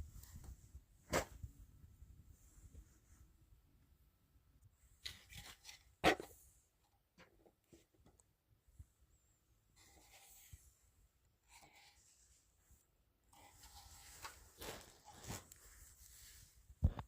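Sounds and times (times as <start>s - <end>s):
scraping and rustling of objects: 5.0s - 6.4s, 9.8s - 10.8s, 11.4s - 17.0s.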